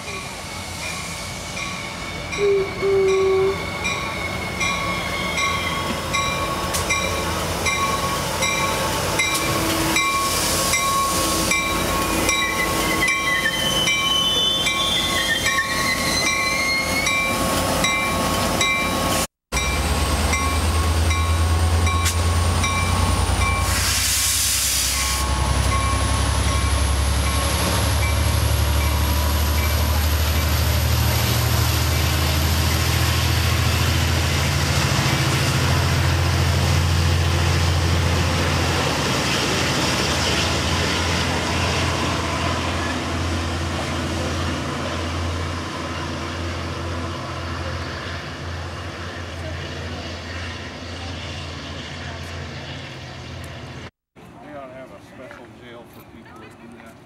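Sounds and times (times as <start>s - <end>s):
air hiss: 23.6s - 25.2s
locomotive engine drone: 25.2s - 53.9s.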